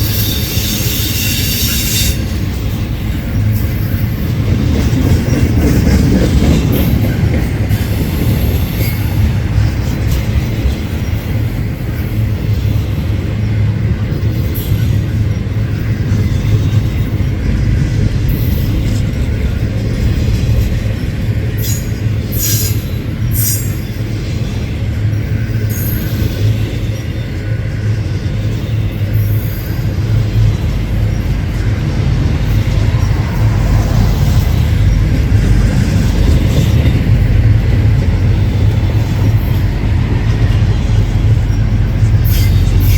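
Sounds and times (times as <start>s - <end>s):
high-pitched wheel squeals: 0.0s - 2.4s
freight train cars rumbling past: 0.0s - 42.9s.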